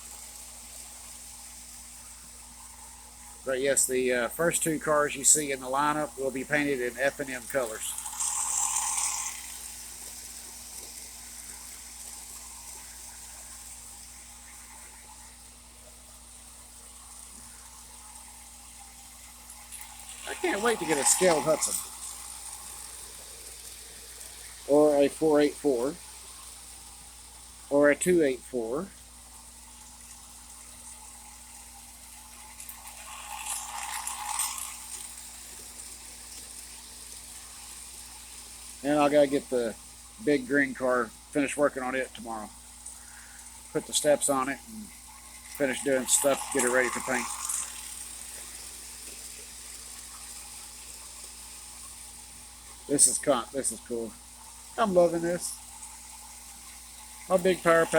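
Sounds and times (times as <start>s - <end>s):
faint electrical hum: 0.0s - 57.9s
model train running on track: 3.4s - 14.9s, 19.7s - 23.4s, 32.7s - 39.8s, 43.8s - 49.8s, 57.2s - 57.9s.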